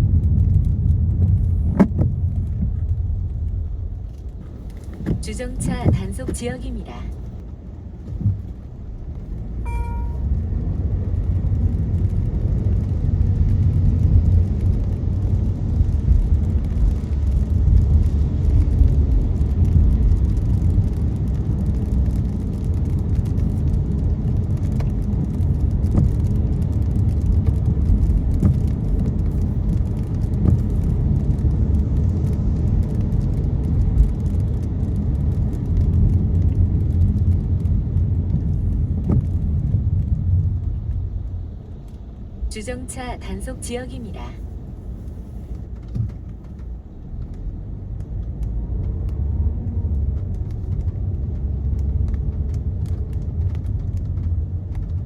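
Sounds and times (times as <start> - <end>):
car engine and road rumble: 0.0 - 55.0
short electronic chime: 9.7 - 10.2.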